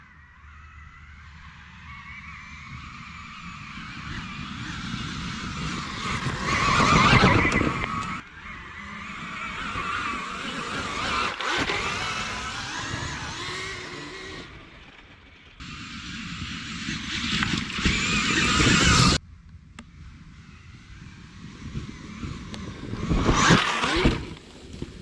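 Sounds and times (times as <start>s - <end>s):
tyre and dirt noise: 0.0s - 25.0s
electric motor whining: 1.1s - 19.2s, 20.4s - 25.0s.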